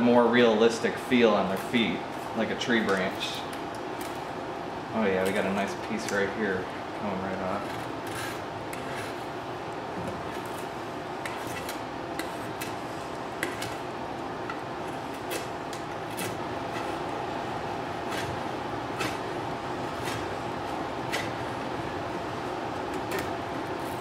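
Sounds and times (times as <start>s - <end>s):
steady background hum: 0.0s - 24.0s
knife scraping wood: 7.6s - 9.3s, 10.2s - 12.8s, 18.0s - 20.4s.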